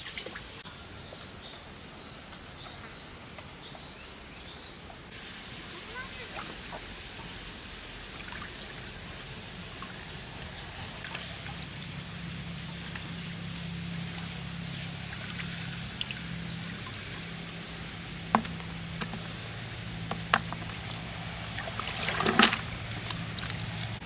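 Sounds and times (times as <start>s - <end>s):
water trickling and splashing: 0.0s - 0.6s, 5.1s - 24.0s
low steady hum: 5.1s - 24.0s.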